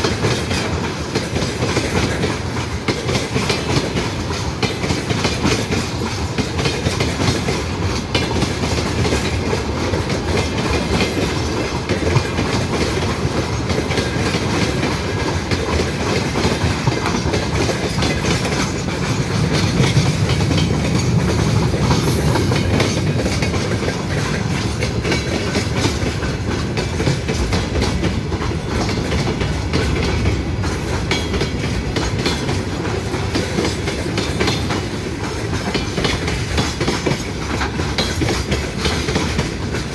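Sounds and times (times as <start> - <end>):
train wheels clattering: 0.0 - 39.9
brief high hiss: 20.8 - 24.2.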